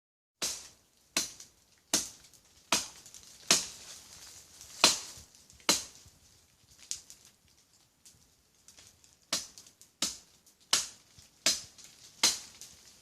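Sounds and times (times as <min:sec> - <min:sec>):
machete chopping into tree: 0:00.4 - 0:03.8, 0:04.7 - 0:06.0, 0:09.3 - 0:12.7.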